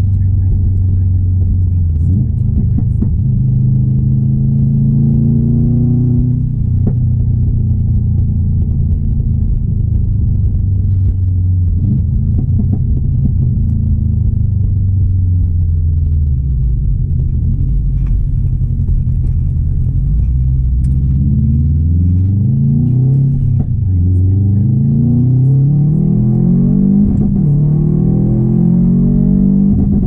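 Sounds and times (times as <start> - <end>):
car engine droning: 0.0 - 30.0.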